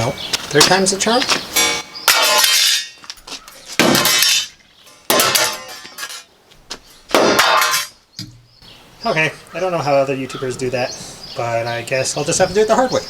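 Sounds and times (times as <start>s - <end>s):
sheet steel clanging: 1.5s - 6.3s, 7.1s - 8.4s.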